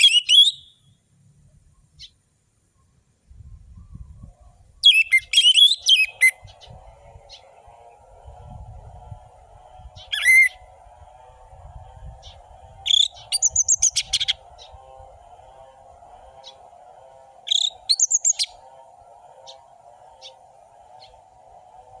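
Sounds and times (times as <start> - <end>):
thrush singing: 4.8 - 22.0
steady low drone: 6.4 - 22.0.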